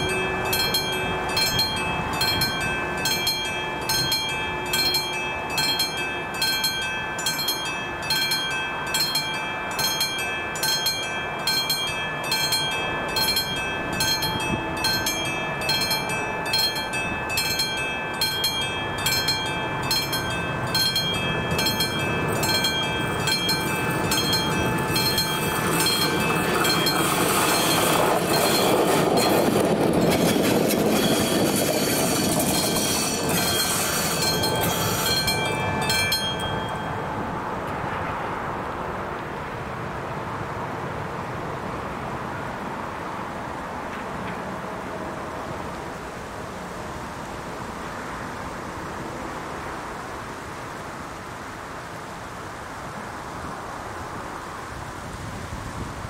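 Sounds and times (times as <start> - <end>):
level crossing warning bell: 0.0 - 37.7
locomotive passing: 0.0 - 56.0
wheel-on-rail noise: 0.0 - 56.0.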